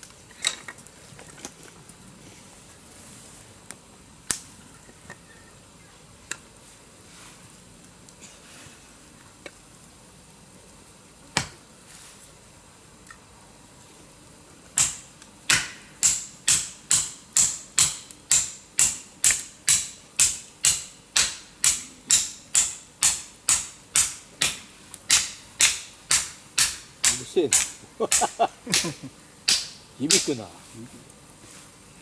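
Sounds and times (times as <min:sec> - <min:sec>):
tool striking hard wood: 0:14.8 - 0:30.4.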